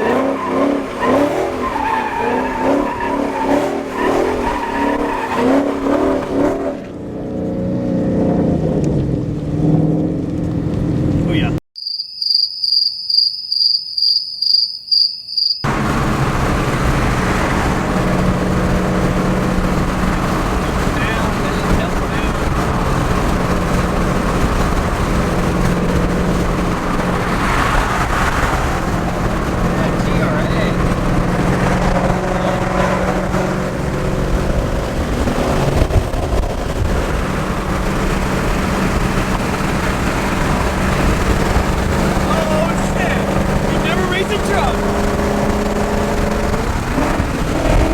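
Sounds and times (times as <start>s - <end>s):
car engine drone: 0.0s - 11.6s, 15.6s - 47.9s
road noise: 0.0s - 11.6s, 15.6s - 47.9s
cricket chirping: 11.8s - 15.7s.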